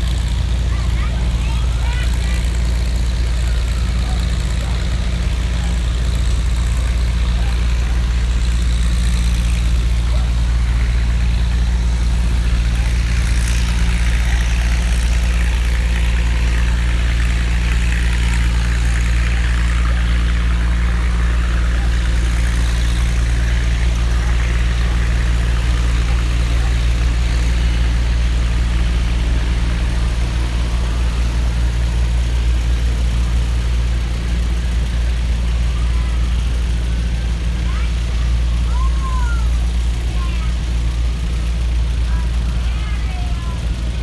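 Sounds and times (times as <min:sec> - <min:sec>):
tractor engine running steadily: 0:00.0 - 0:44.0.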